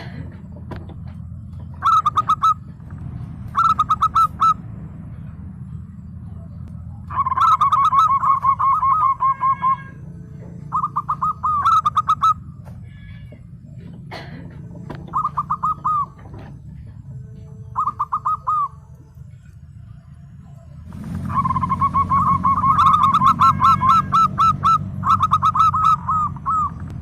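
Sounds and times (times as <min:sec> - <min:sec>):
dove trilled cooing: 0:00.0 - 0:04.6, 0:07.0 - 0:12.7, 0:13.8 - 0:19.4, 0:20.8 - 0:27.0
steady low hum: 0:00.0 - 0:27.0.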